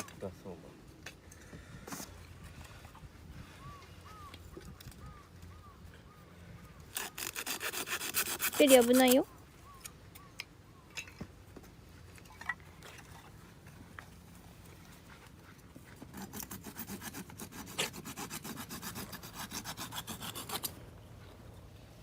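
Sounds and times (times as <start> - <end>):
fast rasping strokes: 6.9 - 9.2, 16.0 - 20.8.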